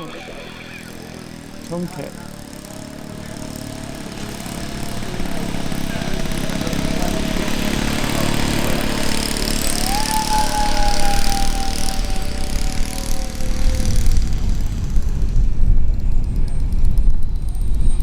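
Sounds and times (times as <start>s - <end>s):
model jet engine whine: 0.0s - 18.0s.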